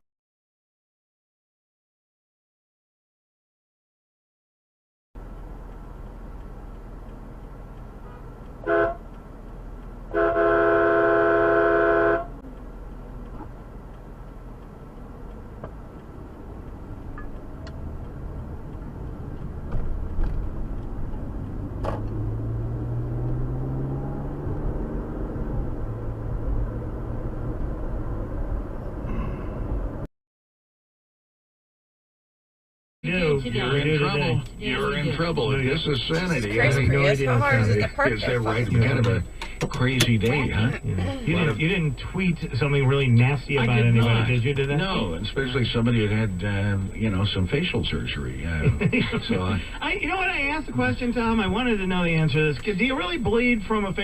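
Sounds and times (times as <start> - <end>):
road and engine noise: 5.2 - 30.1, 33.0 - 54.0
car horn: 8.6 - 9.2, 10.1 - 12.4
engine note rising in pitch: 21.3 - 29.6.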